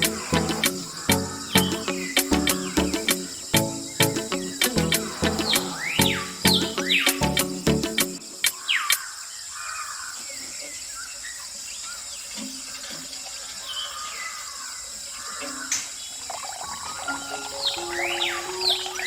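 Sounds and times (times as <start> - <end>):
steady high hiss: 0.0 - 9.0, 16.8 - 19.0
water trickling and splashing: 15.9 - 19.0.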